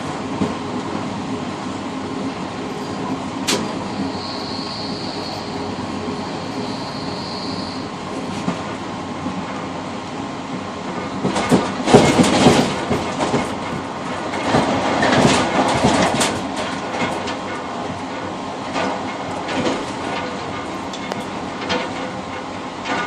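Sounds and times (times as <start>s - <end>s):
train rumble: 0.0s - 23.0s
wheel clatter over rail joints: 2.4s - 4.3s, 10.8s - 23.0s.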